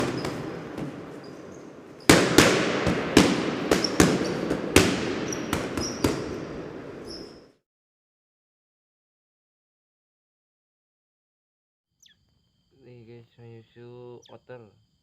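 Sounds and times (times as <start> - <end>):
sharp cracks or bangs: 0.0 - 7.5.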